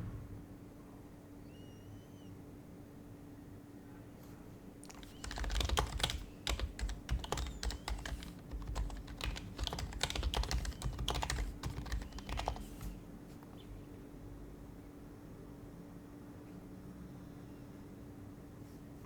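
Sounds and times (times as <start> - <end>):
soft keyboard typing: 4.8 - 13.0.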